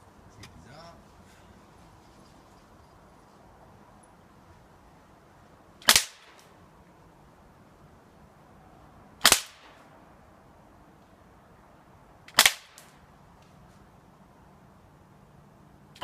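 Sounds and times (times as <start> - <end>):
air pistol shots popping: 5.8 - 6.5, 9.2 - 9.8, 12.3 - 13.0.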